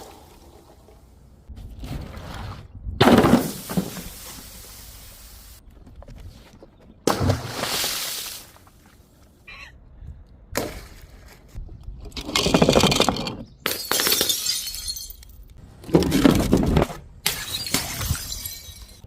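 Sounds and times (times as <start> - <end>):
glass bottles shattering: 12.4 - 15.5, 17.2 - 19.0.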